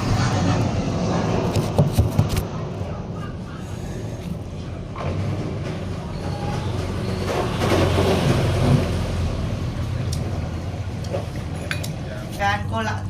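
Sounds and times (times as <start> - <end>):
washing machine hum: 4.4 - 11.7
washing machine rushing noise: 4.5 - 11.7.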